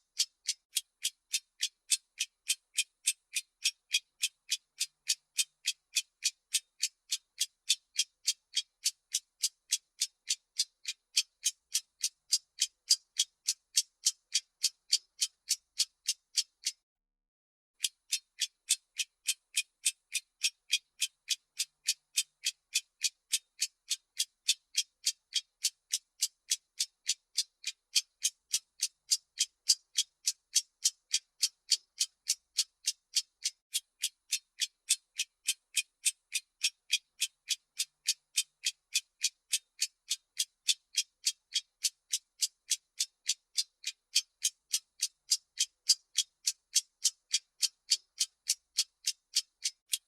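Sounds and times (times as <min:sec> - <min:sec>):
clock ticking: 0:17.8 - 0:50.0.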